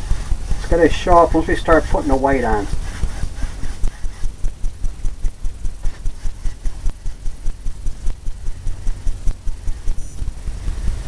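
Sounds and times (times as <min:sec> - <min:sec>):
paint brush scrubbing on canvas: 0:00.0 - 0:04.6, 0:05.6 - 0:08.0.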